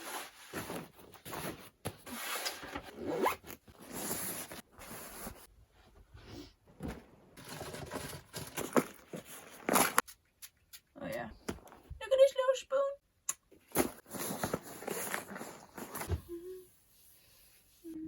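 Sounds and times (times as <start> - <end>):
zipper being pulled: 2.9 - 4.5.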